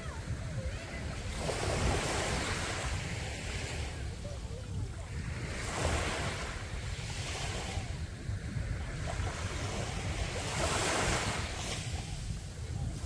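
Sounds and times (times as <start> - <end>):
sea waves breaking on sandy beach: 0.0 - 13.0
wind rumbling on microphone: 0.0 - 13.0.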